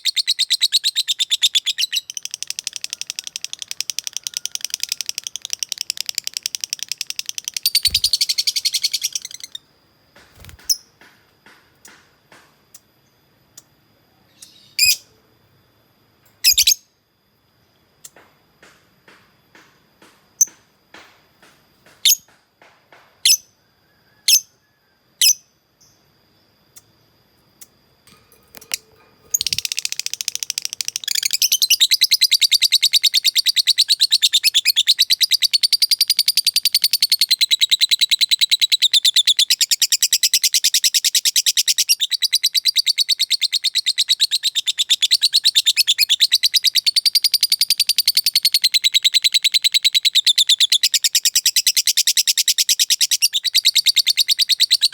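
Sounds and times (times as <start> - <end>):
bird chirps: 0.0 - 9.6, 16.3 - 16.9, 27.6 - 54.9
fast chattering bird trill: 4.8 - 9.6.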